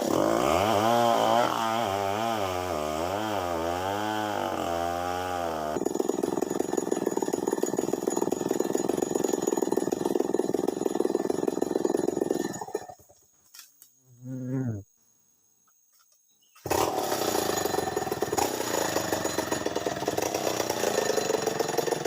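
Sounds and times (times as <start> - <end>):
chainsaw engine revving: 0.0 - 13.0, 16.6 - 22.0
rapid rattling buzz: 16.6 - 22.0.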